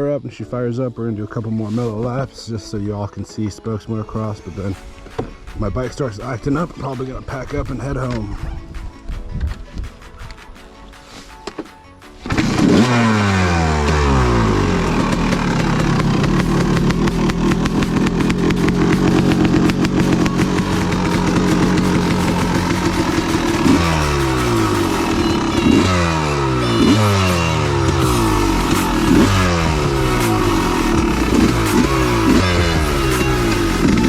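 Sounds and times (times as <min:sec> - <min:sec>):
two-stroke motorcycle engine revving: 0:12.2 - 0:34.0.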